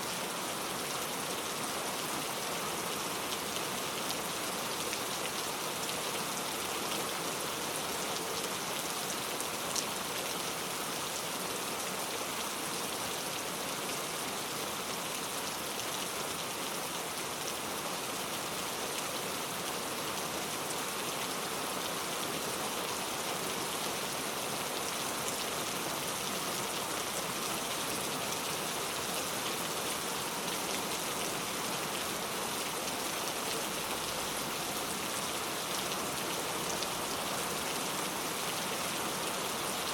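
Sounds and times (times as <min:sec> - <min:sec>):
heavy rain on road: 0:00.1 - 0:39.9.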